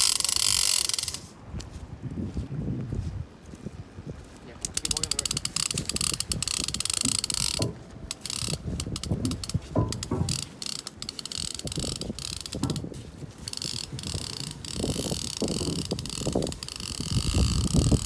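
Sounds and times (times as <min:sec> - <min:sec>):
fishing reel ratchet clicking: 0:00.0 - 0:01.3, 0:04.6 - 0:12.8, 0:13.5 - 0:18.0
low rumbling handling noise: 0:04.5 - 0:18.0.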